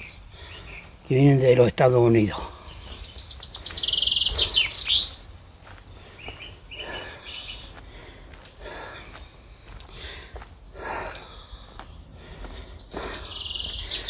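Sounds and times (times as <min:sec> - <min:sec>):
songbird trilling: 0:00.0 - 0:05.4, 0:06.2 - 0:09.1, 0:12.6 - 0:14.0.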